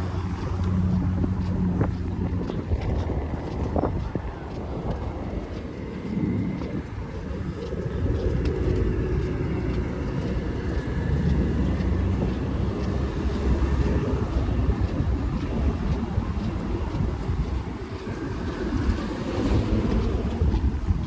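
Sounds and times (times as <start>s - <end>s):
road traffic rumble: 0.0s - 21.0s
wind buffeting microphone: 0.0s - 21.0s.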